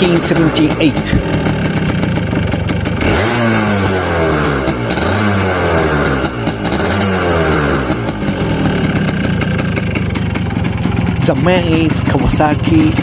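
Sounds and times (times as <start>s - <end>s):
two-stroke motorcycle engine revving: 0.0s - 13.0s.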